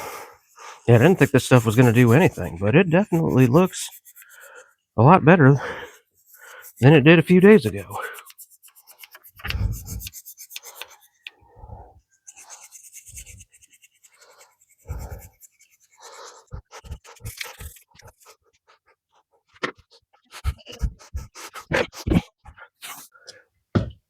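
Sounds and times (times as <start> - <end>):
brush scrubbing metal: 0.8 - 4.8, 5.8 - 11.3, 12.2 - 18.4.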